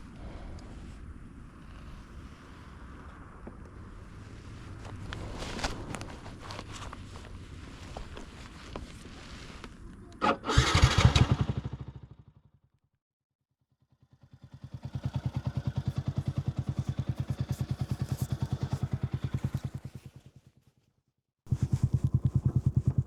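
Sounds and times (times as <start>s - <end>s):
motorcycle starting up: 10.2s - 12.2s, 14.0s - 20.3s, 21.5s - 23.0s
motorcycle engine idling: 13.9s - 20.6s, 21.5s - 23.0s.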